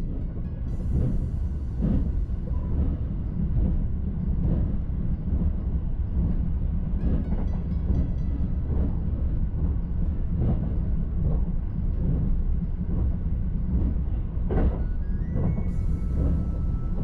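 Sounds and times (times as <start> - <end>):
train low rumble: 0.0 - 17.0
faint rising tone: 14.7 - 17.0.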